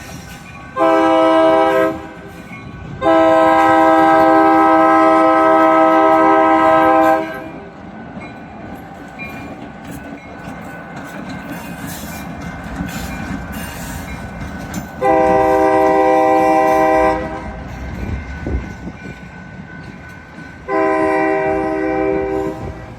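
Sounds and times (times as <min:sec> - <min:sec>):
train wheel clatter: 0:00.0 - 0:22.9
locomotive horn blasts: 0:00.8 - 0:02.3, 0:03.0 - 0:07.6, 0:15.0 - 0:17.6, 0:20.7 - 0:22.9.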